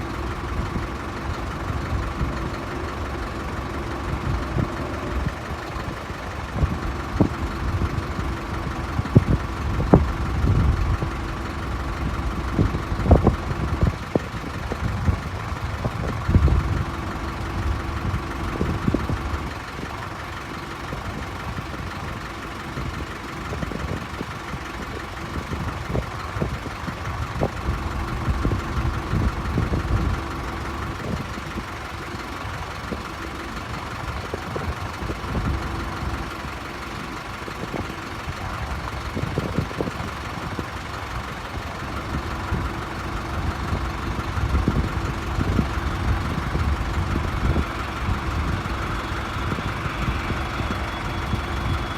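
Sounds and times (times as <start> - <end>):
jet engines whining: 45.3 - 51.9.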